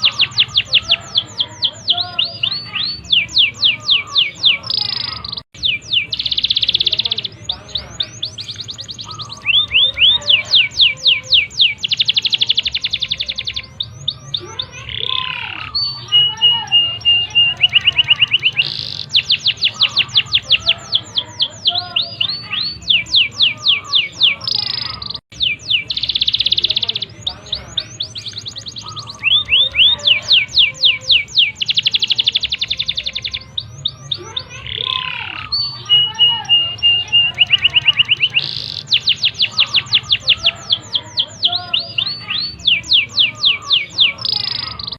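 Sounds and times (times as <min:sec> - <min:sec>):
canary singing: 0:00.0 - 0:44.9.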